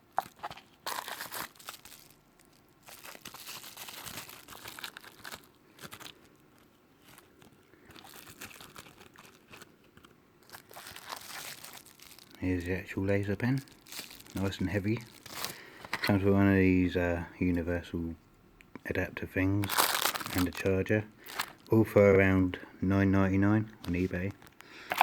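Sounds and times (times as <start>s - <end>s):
plastic packaging crinkling: 0.0s - 16.3s, 19.6s - 22.0s, 23.7s - 25.0s.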